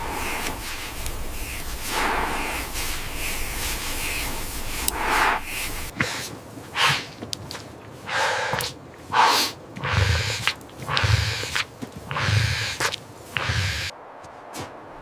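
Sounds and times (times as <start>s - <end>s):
low rumble: 0.0s - 5.9s
steady rushing noise: 0.0s - 6.6s, 10.0s - 15.0s
heavy breaths or snorts: 0.0s - 7.2s, 8.0s - 13.9s.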